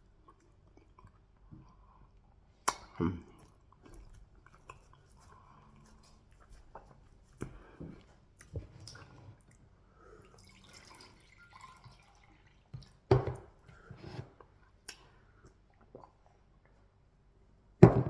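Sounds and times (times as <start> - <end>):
wet mouth smacks and chewing: 2.6 - 9.7, 14.8 - 16.8.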